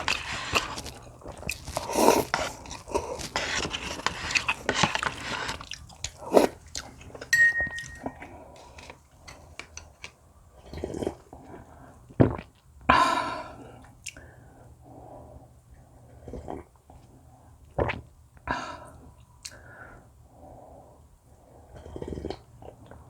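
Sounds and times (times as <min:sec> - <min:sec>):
chewing and biting food: 0:00.0 - 0:07.2.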